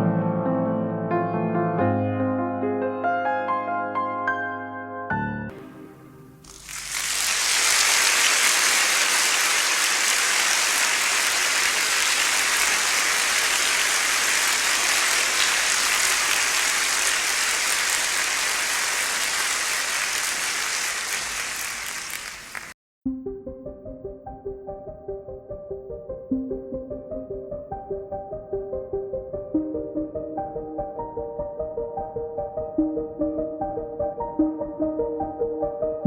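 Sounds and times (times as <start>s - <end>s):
rushing water: 6.4s - 22.8s.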